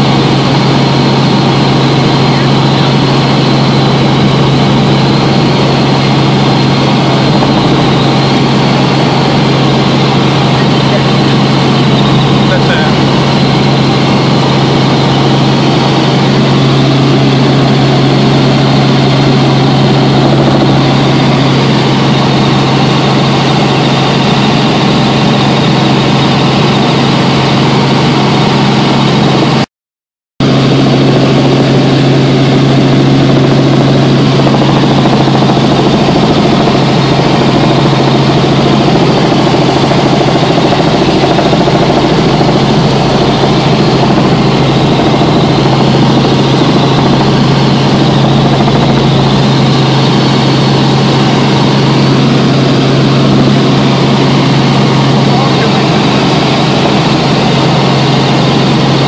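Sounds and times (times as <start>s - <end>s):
helicopter engine and rotor drone: 0.0s - 29.7s, 30.4s - 59.0s.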